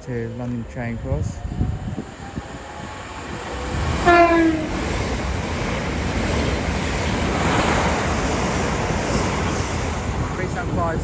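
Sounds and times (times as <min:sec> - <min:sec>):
train rushing past: 0:00.0 - 0:11.0
train horn blast: 0:03.7 - 0:05.0.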